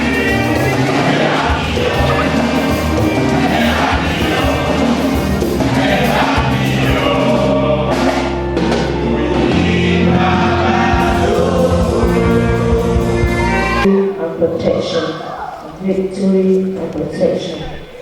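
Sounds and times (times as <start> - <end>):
steady low bass: 0.0 - 13.9
choir singing gospel: 0.0 - 15.8.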